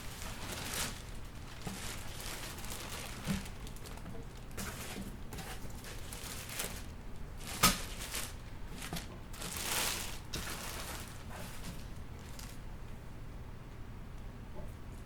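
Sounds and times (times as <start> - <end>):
packaging rustling: 0.0 - 12.6.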